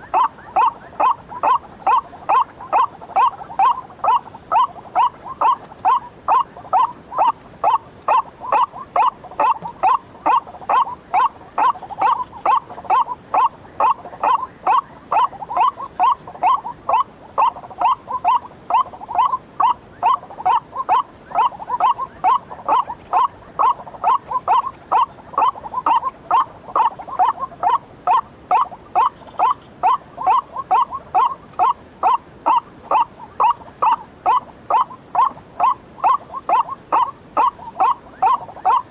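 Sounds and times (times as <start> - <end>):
waterhen calling: 0.0 - 38.9.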